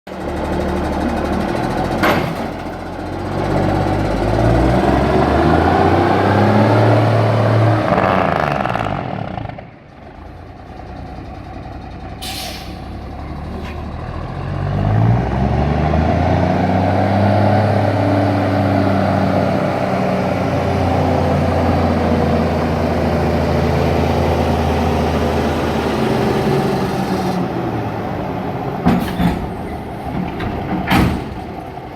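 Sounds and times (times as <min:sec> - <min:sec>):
diesel truck engine pulling hard: 0:00.1 - 0:31.9
short hiss: 0:12.2 - 0:12.9.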